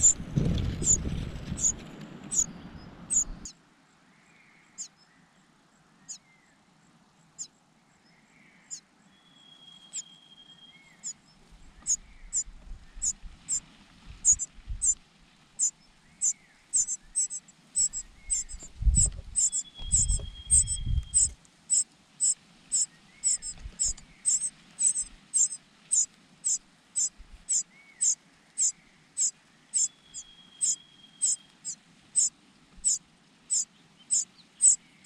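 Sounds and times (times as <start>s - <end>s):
dull low rumble: 0.0s - 3.5s, 14.1s - 15.0s, 17.8s - 21.4s
chick high-pitched begging calls: 16.8s - 31.4s, 32.2s - 34.8s.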